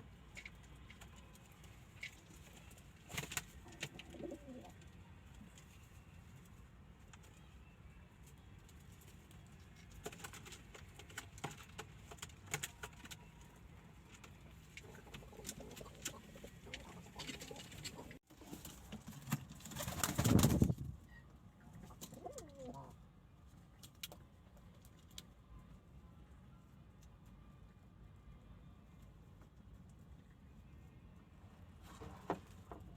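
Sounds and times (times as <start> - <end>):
pigeons cooing: 3.7 - 4.8, 21.8 - 23.0.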